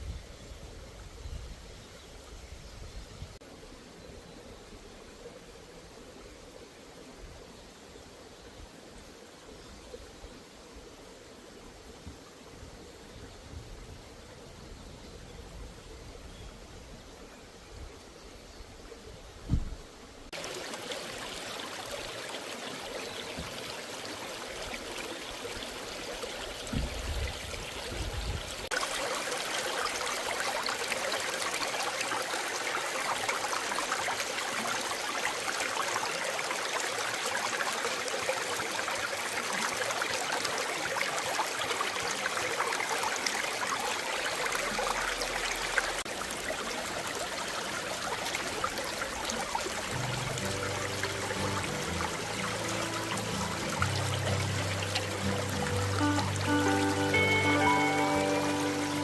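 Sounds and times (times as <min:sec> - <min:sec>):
low thump: 0:19.5 - 0:19.8
stream water rushing: 0:19.5 - 0:59.0.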